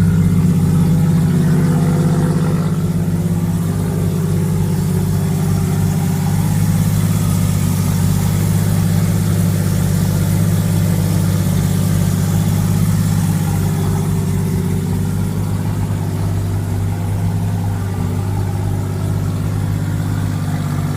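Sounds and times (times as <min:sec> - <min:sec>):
rotary engine idling: 0:00.0 - 0:20.9.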